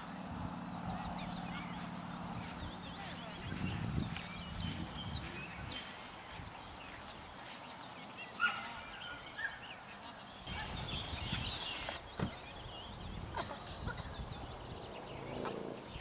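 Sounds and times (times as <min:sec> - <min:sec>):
songbirds singing: 0:00.0 - 0:16.0
low rustling rumble: 0:00.2 - 0:06.8.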